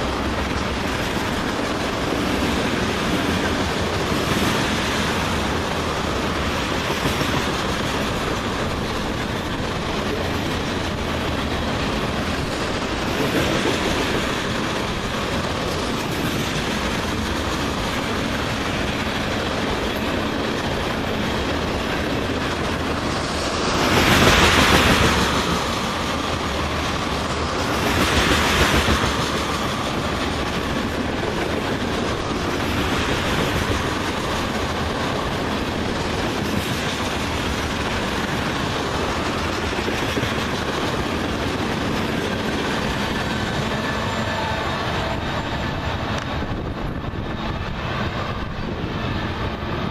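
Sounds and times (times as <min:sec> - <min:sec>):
freight train rumbling past: 0:00.0 - 0:49.9.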